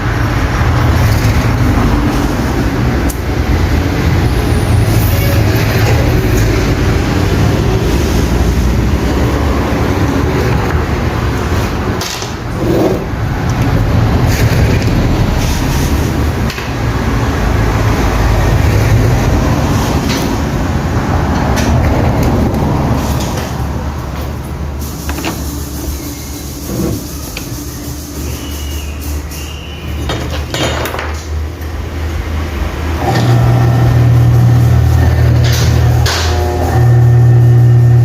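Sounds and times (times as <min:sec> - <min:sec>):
electric motor humming: 0:33.0 - 0:38.0.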